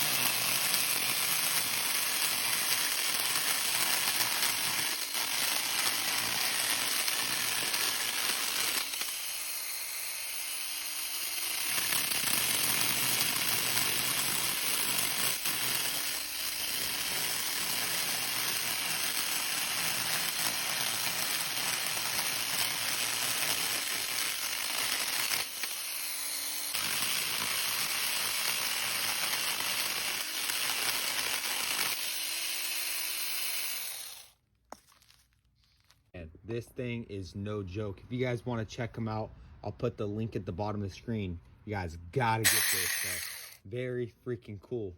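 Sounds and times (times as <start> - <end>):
chainsaw cutting wood: 0.0 - 34.4, 42.2 - 43.6
chainsaw motor humming: 0.0 - 34.4, 42.4 - 43.6.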